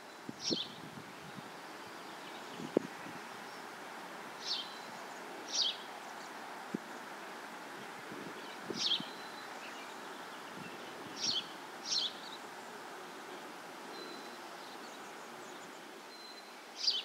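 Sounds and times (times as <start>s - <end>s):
steady soft hiss: 0.0s - 17.0s
bird chirps: 8.8s - 12.4s, 13.9s - 17.0s.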